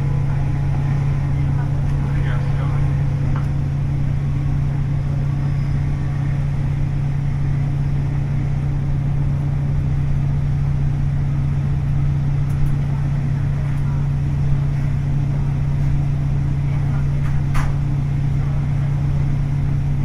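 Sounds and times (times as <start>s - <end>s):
diesel engine low hum: 0.0s - 20.0s.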